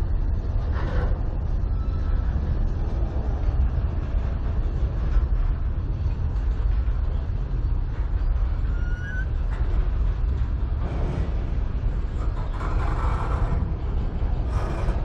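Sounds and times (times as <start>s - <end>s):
steel wheels rumbling on rails: 0.0s - 15.0s
faint wheel squeal: 1.6s - 2.4s, 8.2s - 9.5s.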